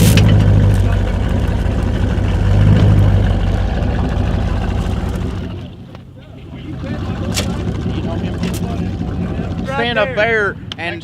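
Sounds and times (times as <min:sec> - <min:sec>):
truck engine under load: 0:00.0 - 0:11.0.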